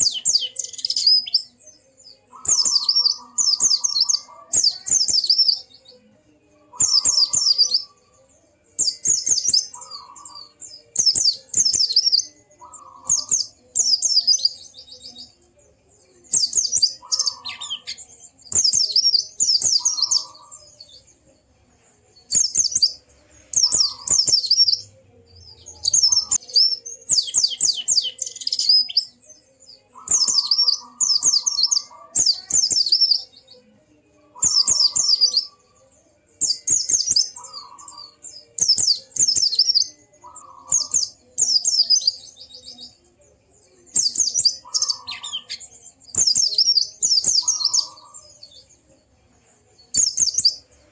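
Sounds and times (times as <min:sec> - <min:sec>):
small bird high chirps: 0:00.0 - 0:21.3, 0:22.2 - 0:49.1, 0:49.7 - 0:50.9.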